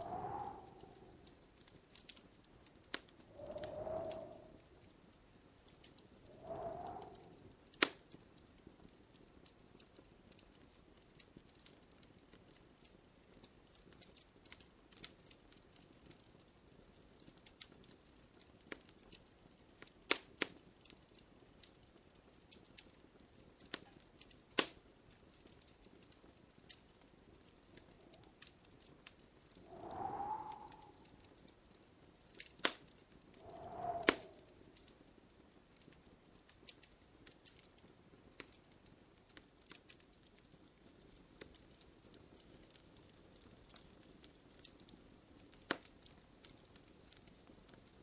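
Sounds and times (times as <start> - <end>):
faint hiss: 0.0 - 8.2, 27.2 - 35.2
fire popping: 0.0 - 48.0
wood fire crackling: 0.0 - 48.0.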